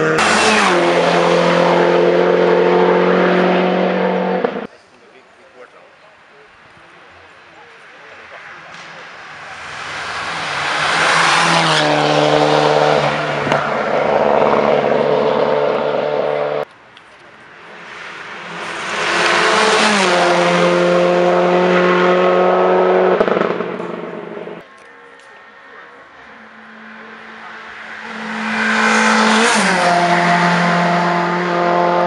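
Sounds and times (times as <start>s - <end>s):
race cars passing at speed: 0.0s - 4.7s, 7.4s - 16.7s, 17.3s - 32.0s.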